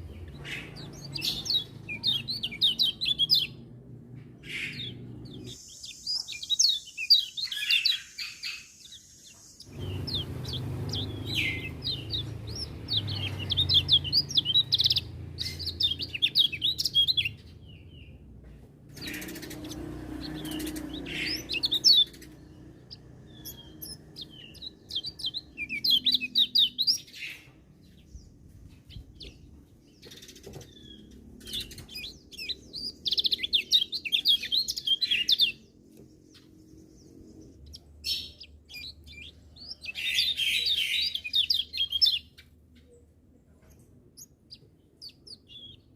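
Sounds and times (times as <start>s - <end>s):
songbird twittering: 0.0s - 3.7s, 4.4s - 18.2s, 18.9s - 43.0s, 44.2s - 45.9s.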